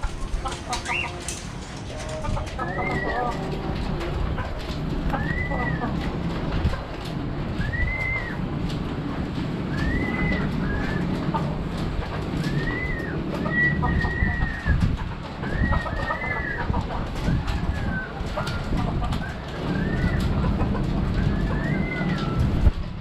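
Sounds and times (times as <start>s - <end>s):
birds calling: 0.0s - 22.8s
steady low rumble: 0.0s - 23.0s.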